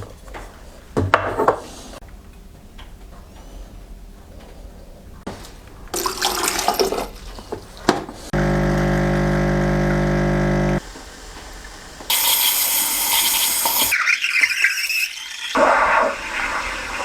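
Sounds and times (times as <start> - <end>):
water running from a tap: 6.0 - 7.2, 12.1 - 15.6
small electric motor humming: 8.4 - 10.8.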